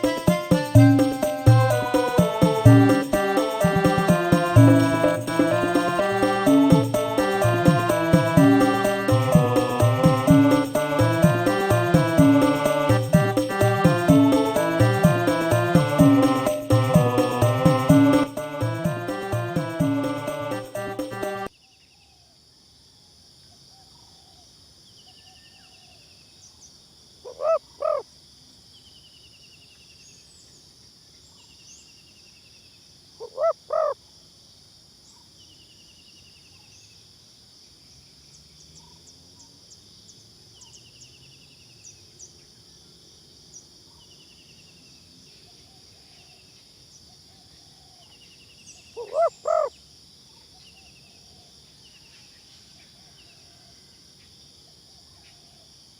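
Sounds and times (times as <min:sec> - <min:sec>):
dove cooing: 0:49.0 - 0:49.7.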